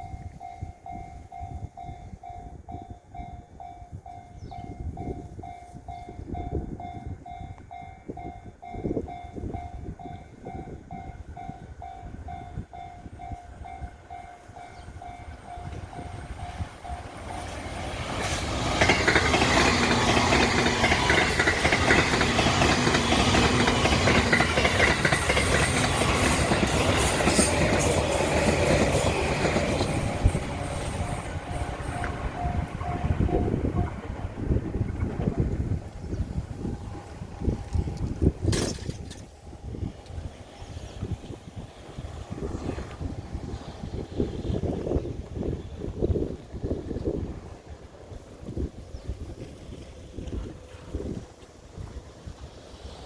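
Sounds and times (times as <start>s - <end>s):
level crossing warning bell: 0.0s - 34.6s
train wheels clattering on rails: 7.6s - 45.5s.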